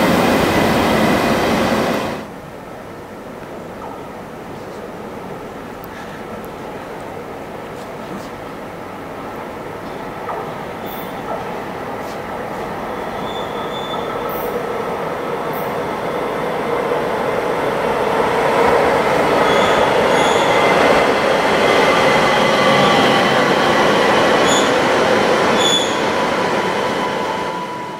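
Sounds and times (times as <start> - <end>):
electric train rumbling past: 0.0 - 27.9
high-pitched wheel squeals: 12.9 - 14.6, 19.4 - 20.7, 24.4 - 24.8, 25.5 - 26.1.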